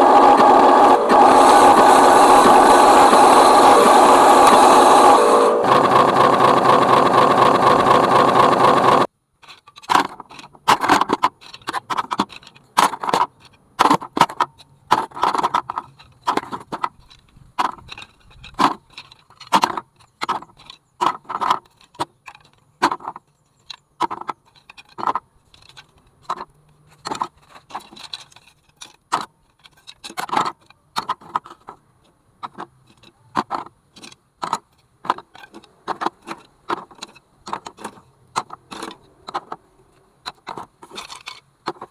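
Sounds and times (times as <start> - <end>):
loud steady sound: 0.0 - 9.1
bamboo sticks knocking together: 32.4 - 41.9.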